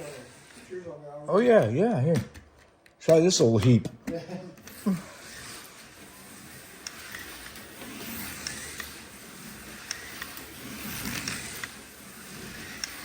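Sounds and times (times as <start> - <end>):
slot car motor whirring: 0.0 - 1.7, 4.6 - 13.0.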